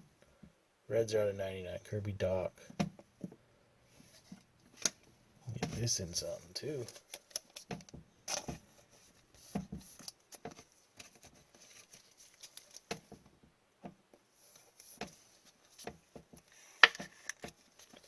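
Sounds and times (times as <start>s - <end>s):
light plastic rustles: 3.9s - 13.4s, 14.4s - 18.0s.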